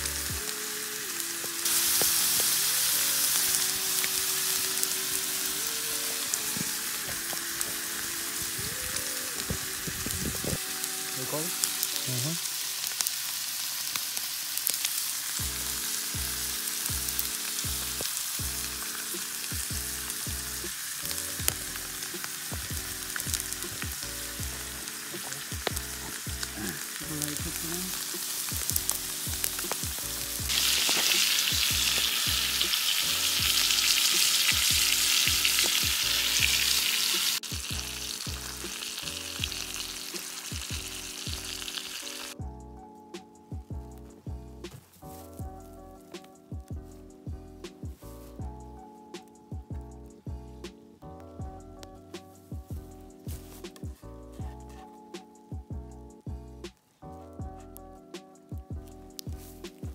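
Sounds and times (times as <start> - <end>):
steaks sizzling in a skillet: 0.0 - 42.4.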